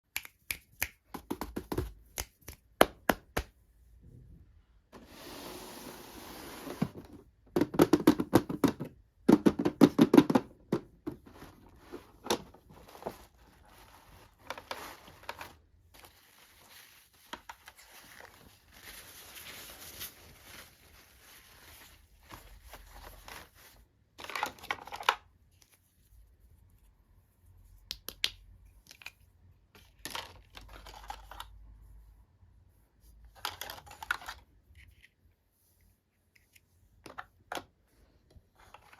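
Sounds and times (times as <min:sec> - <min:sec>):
packaging clicks and taps: 0:07.5 - 0:11.2.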